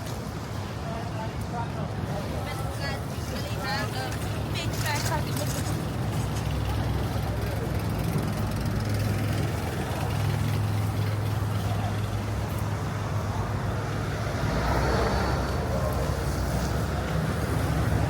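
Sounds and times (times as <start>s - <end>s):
city street traffic: 0.0s - 18.0s
vehicle engine humming: 4.1s - 18.0s.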